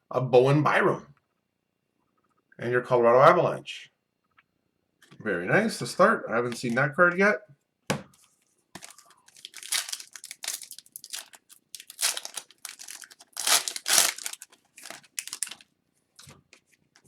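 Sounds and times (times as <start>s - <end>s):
cards being handled: 8.2s - 15.6s
foil wrappers crinkling and tearing: 8.8s - 15.7s.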